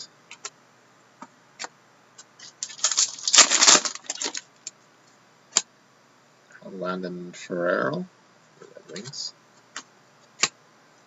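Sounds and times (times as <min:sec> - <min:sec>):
trading cards rustling: 0:02.6 - 0:04.4.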